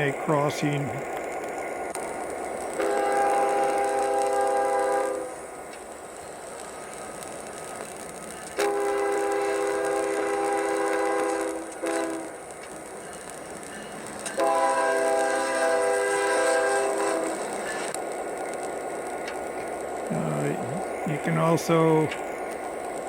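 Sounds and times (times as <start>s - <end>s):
diesel locomotive horn blasts: 2.8s - 5.4s, 8.6s - 12.4s, 14.4s - 17.5s.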